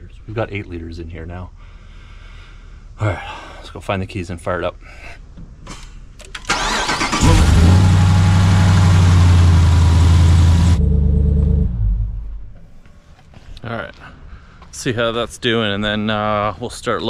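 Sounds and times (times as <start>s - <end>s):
engine cranking and starting: 6.2s - 10.8s
engine running loud: 7.1s - 12.4s.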